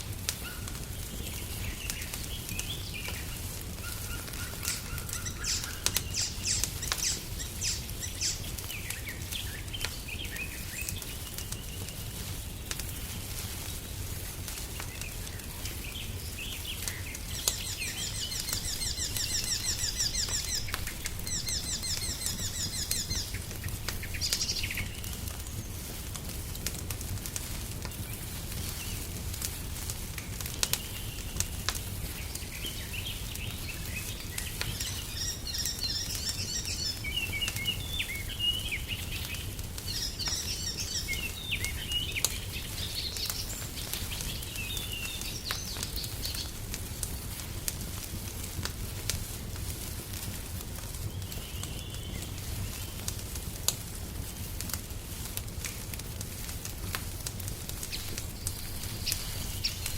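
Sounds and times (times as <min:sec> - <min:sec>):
songbirds singing: 0:00.0 - 0:26.1, 0:30.2 - 0:46.6, 0:51.0 - 0:53.2, 0:57.8 - 0:59.9
wood fire crackling: 0:00.0 - 0:59.9.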